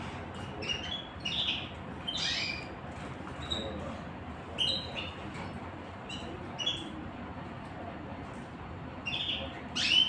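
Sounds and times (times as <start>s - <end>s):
small songbirds chirping: 0.4s - 2.8s, 9.0s - 10.0s.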